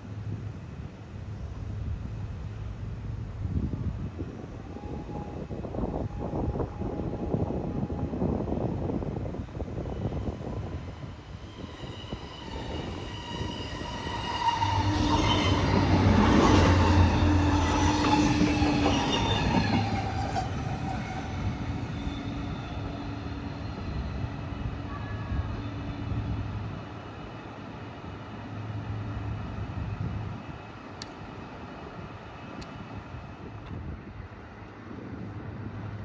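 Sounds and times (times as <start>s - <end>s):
train rumbling past: 0.0s - 36.0s
steady whining tones: 9.6s - 26.4s.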